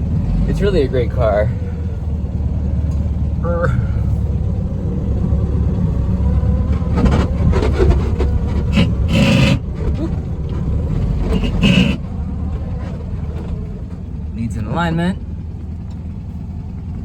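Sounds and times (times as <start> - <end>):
car engine and road noise: 0.0 - 17.0
short loud noises: 11.2 - 12.1.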